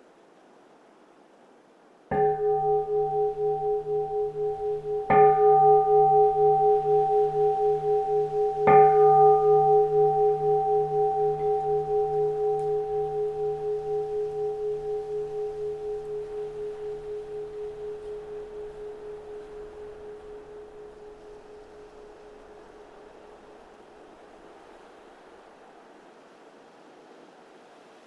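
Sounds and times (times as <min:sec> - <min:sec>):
bowl bell struck and ringing: 0:02.1 - 0:23.4.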